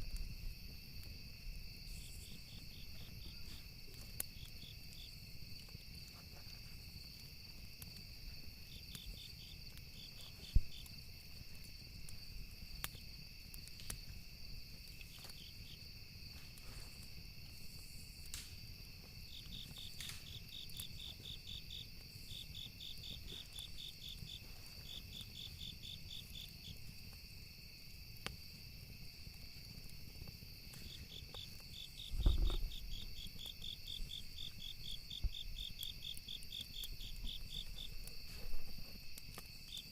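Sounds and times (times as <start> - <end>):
burning wood crackling: 0.0 - 39.9
crickets chirping: 0.0 - 39.9
high insect trill: 0.0 - 39.9
dull low thump: 32.1 - 32.7.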